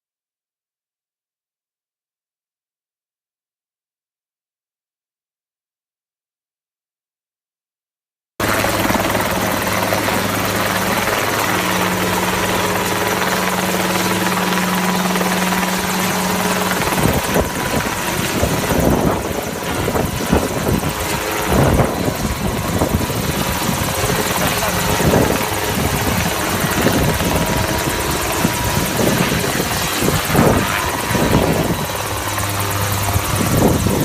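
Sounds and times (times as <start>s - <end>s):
helicopter running: 8.4s - 34.0s.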